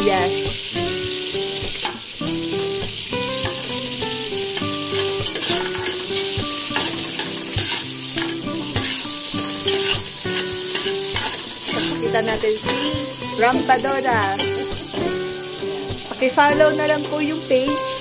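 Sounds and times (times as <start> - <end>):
onion and garlic sizzling in oil: 0.0 - 18.0
simple background melody: 0.0 - 18.0
metal ladle stirring in pot: 9.7 - 10.1.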